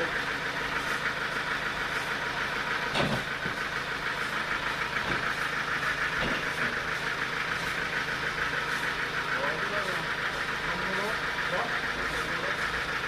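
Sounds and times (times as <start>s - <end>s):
sawmill engine humming: 0.0s - 13.0s.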